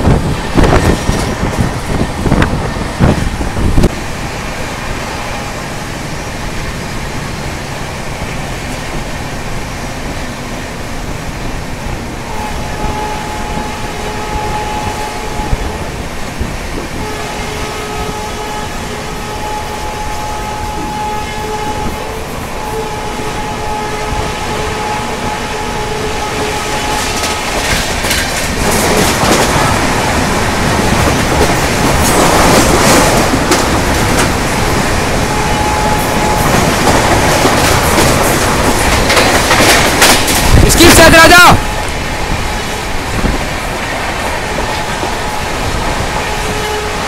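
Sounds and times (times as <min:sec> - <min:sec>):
rushing air: 0:00.0 - 0:12.4, 0:27.4 - 0:47.0
train rail rumble: 0:00.0 - 0:47.0.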